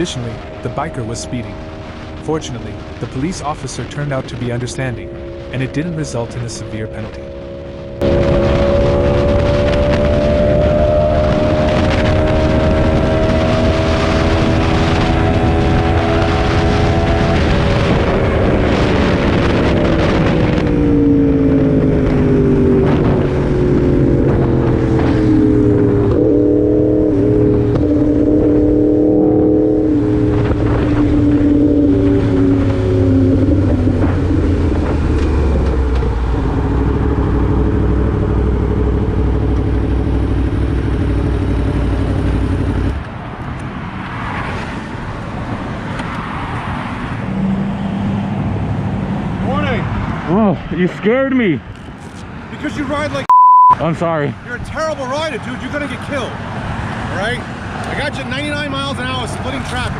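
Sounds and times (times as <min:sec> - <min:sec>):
motorcycle engine: 0:00.0 - 0:43.2
road background noise: 0:00.0 - 0:59.9.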